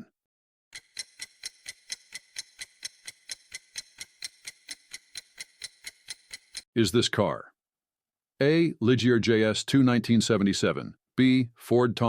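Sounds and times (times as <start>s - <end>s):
countdown timer ticking: 0.7s - 6.6s.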